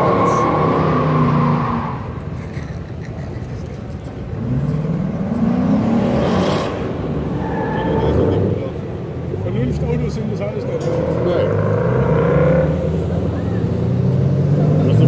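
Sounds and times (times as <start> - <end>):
car engine accelerating: 4.1 - 15.0.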